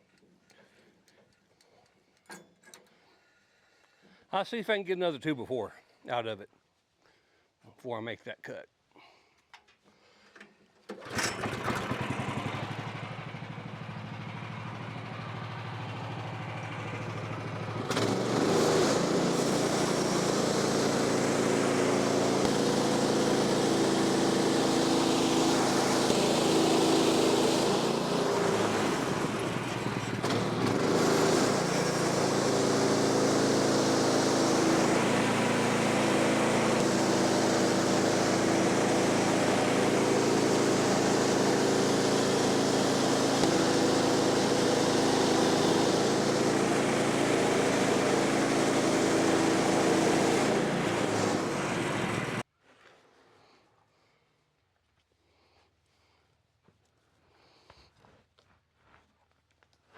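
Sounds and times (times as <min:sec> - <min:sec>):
gas engine running: 0:11.0 - 0:52.4
band saw cutting log: 0:17.9 - 0:52.4.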